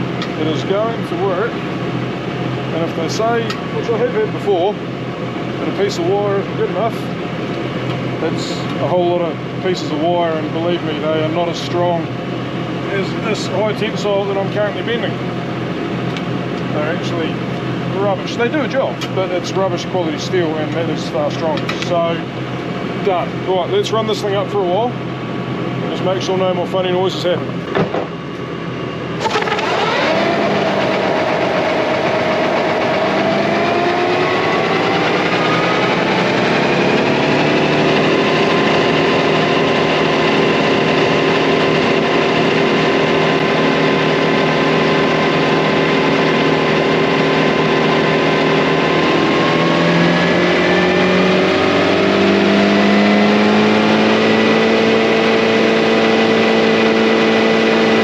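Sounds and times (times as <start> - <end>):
tractor engine speeding up: 0.0 - 58.0.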